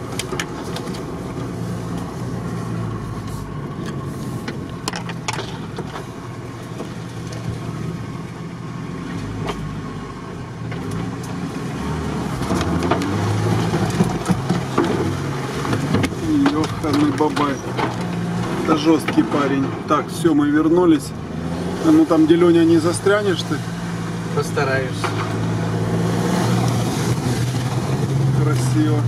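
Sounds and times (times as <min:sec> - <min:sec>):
vehicle engine at low revs: 0:00.0 - 0:29.0
knocks and rattles: 0:04.5 - 0:06.0, 0:12.4 - 0:19.8.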